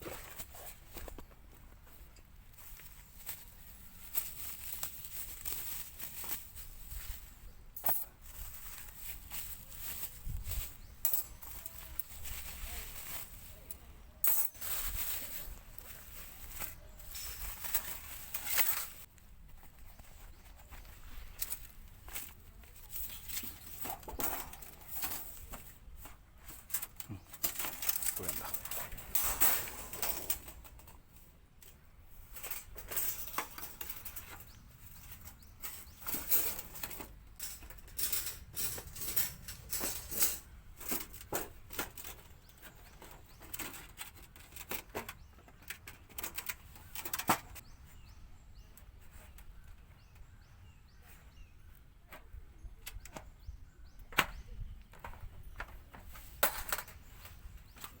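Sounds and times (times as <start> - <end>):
gear being handled: 21.2 - 30.7.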